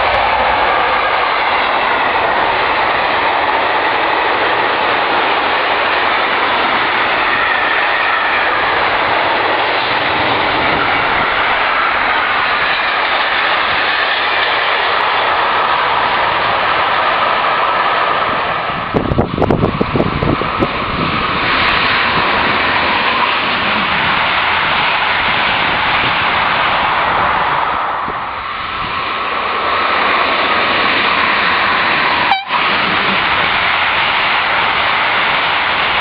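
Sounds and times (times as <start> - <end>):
freight train wheels on rails: 0.0 - 36.0.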